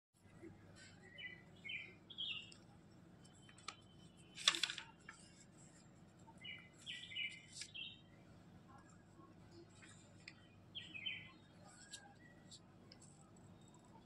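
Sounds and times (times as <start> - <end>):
small birds chirping: 0.3 - 5.1, 6.3 - 8.2, 8.8 - 14.0
brief rustle: 4.4 - 5.3.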